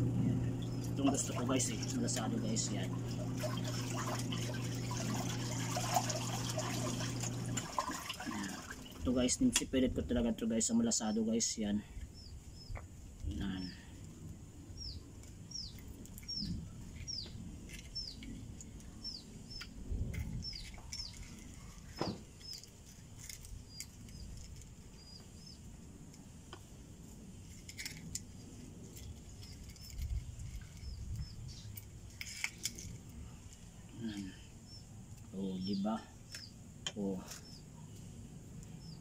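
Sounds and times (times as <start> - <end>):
bird chirping: 10.7 - 14.0, 14.6 - 25.7, 29.3 - 32.7, 33.7 - 39.0.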